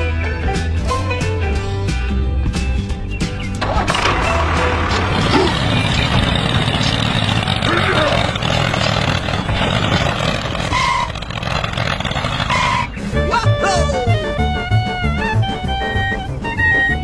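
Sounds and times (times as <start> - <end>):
vehicle engine noise: 3.4 - 17.0.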